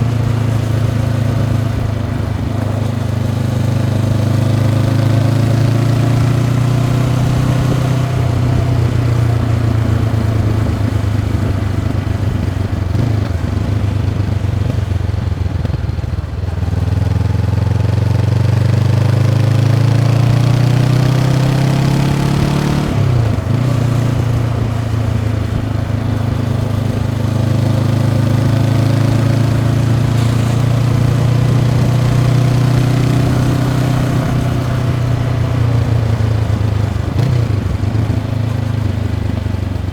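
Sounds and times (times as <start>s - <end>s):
motorcycle engine while riding: 0.0s - 39.9s.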